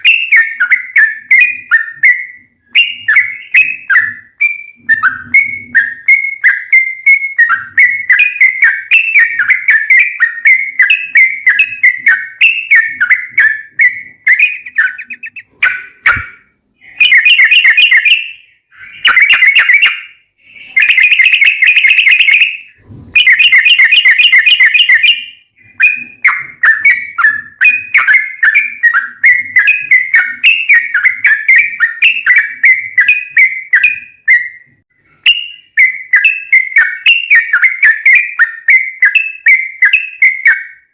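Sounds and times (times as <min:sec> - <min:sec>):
bulbul bubbly whistled song: 0:00.0 - 0:40.9
bird rapid trills: 0:08.1 - 0:16.2.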